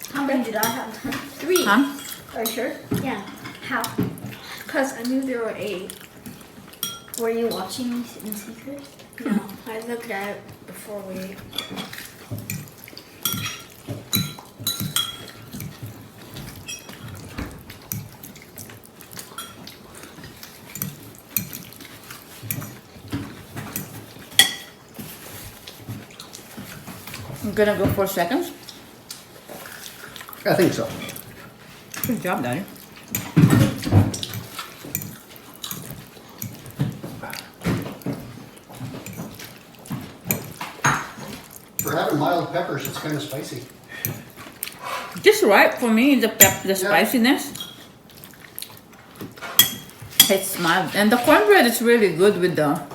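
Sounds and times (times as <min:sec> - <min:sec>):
chewing and smacking: 0:03.2 - 0:27.5, 0:28.6 - 0:45.3, 0:47.5 - 0:50.7
cutlery clinking on plates: 0:11.5 - 0:18.2, 0:22.3 - 0:25.2, 0:33.1 - 0:42.2, 0:49.3 - 0:50.4.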